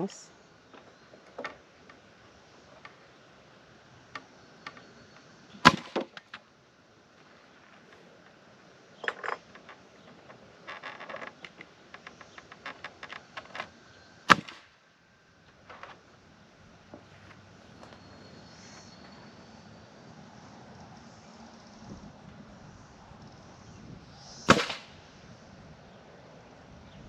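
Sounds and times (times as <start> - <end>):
loud cracking strikes on wood: 5.6 - 6.4, 14.3 - 14.8, 24.5 - 25.1
small ticks: 9.1 - 14.2.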